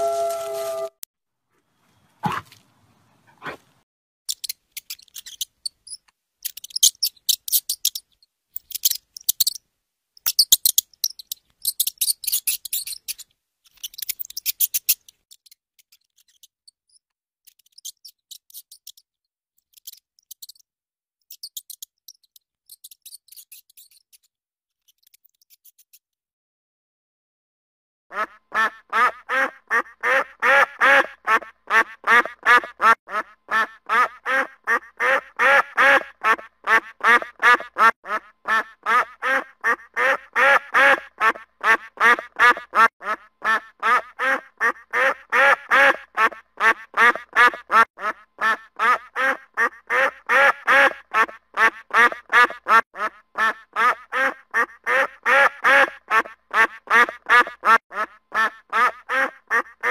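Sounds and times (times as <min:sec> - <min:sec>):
waterfowl quacking: 0:28.1 - 0:59.9.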